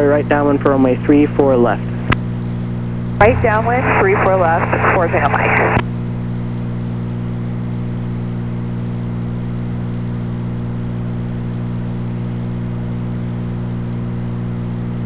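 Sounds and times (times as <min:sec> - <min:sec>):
propeller plane engine droning: 0:03.1 - 0:06.1.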